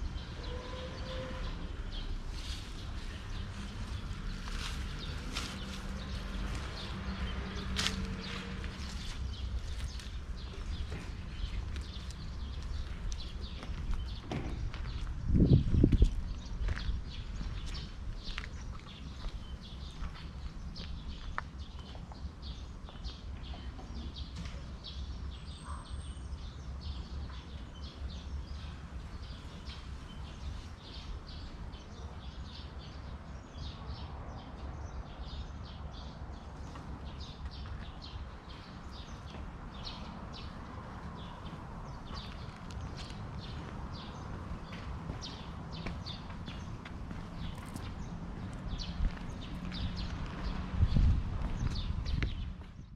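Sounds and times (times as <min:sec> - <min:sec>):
small birds chirping: 0:01.9 - 0:52.9.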